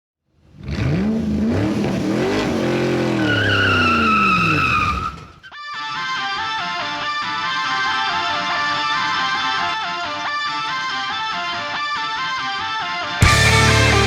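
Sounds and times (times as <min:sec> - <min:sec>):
car engine revving: 0:00.4 - 0:05.3, 0:06.6 - 0:14.0
tires squealing: 0:00.5 - 0:11.3
guitar-led music: 0:05.4 - 0:14.0.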